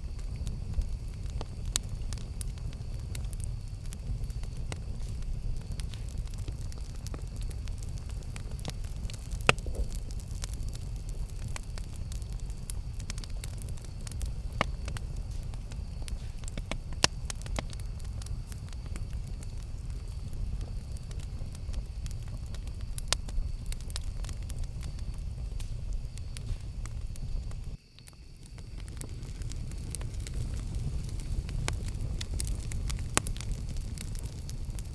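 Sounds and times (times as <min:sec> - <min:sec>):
burning wood crackling and popping: 0:00.0 - 0:34.9
campfire flame rumble: 0:00.0 - 0:34.9.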